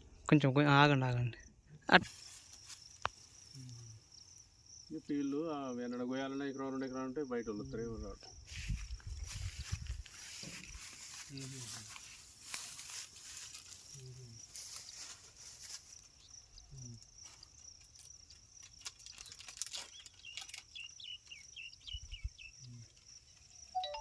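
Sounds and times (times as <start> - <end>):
short chirps: 23.8 - 24.0.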